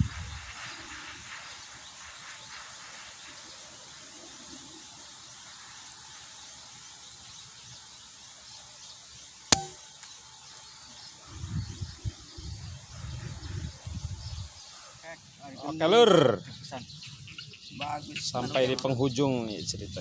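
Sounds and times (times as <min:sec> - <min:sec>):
wind buffeting microphone: 0:00.0 - 0:01.2, 0:11.2 - 0:14.6
wind hiss: 0:00.0 - 0:08.5, 0:11.1 - 0:15.4
air rifle shot: 0:09.5 - 0:09.8.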